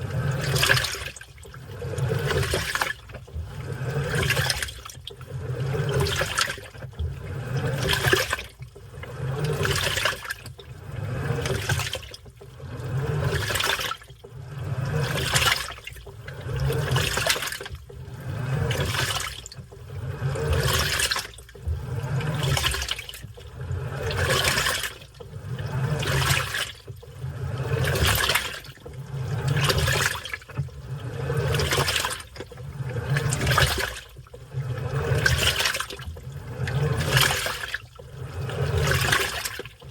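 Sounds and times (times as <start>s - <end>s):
low motor hum: 0.0s - 39.9s
washing machine water churning: 0.0s - 39.9s.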